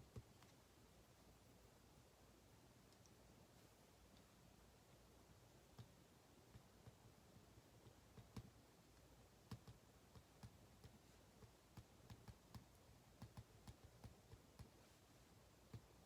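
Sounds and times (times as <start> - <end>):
light clicks and taps at desk: 0.0 - 0.7, 2.9 - 3.2, 5.6 - 15.0, 15.6 - 16.0.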